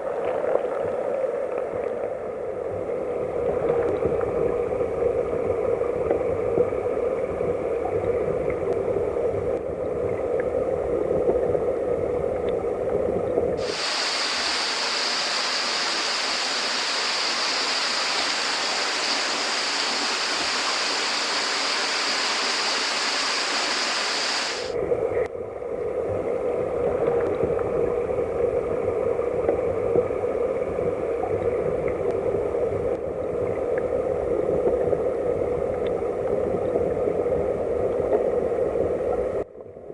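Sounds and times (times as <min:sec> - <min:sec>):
hissing splashing water: 0:13.6 - 0:24.8
muffled stream rushing: 0:13.6 - 0:25.1.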